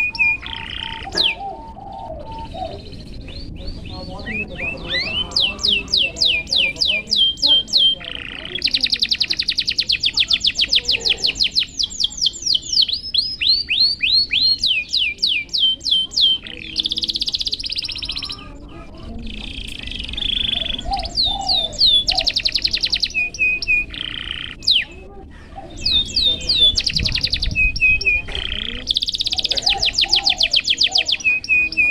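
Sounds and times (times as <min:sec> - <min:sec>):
canary singing trills: 0:00.0 - 0:31.9.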